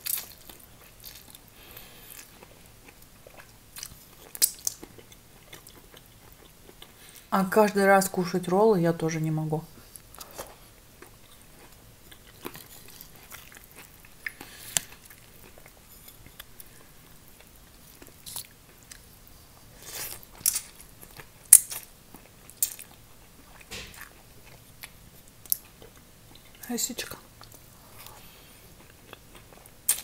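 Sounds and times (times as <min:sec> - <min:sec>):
chewing with wet mouth smacks: 0:00.0 - 0:07.2, 0:10.1 - 0:19.1, 0:20.0 - 0:26.6.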